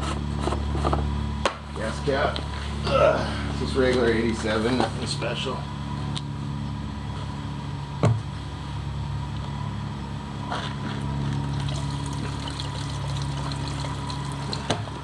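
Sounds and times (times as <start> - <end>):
low hum: 0.0 - 15.0
fuel trickling into tank: 11.3 - 15.0.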